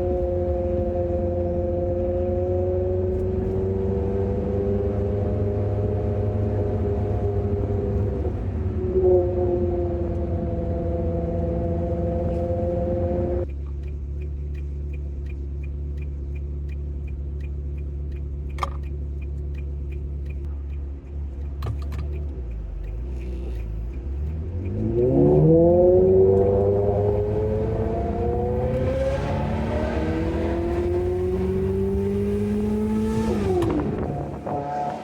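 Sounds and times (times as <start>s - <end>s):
car engine idling and revving: 0.0s - 35.0s
fast light ticking: 13.4s - 29.4s.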